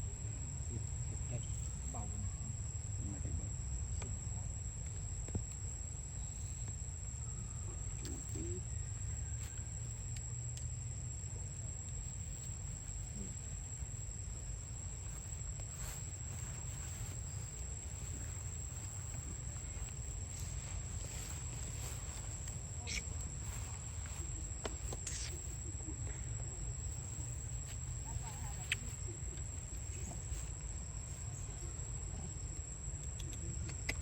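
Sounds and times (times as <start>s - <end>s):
crickets droning: 0.0s - 34.0s
faint ticks: 10.0s - 10.8s, 32.9s - 34.0s.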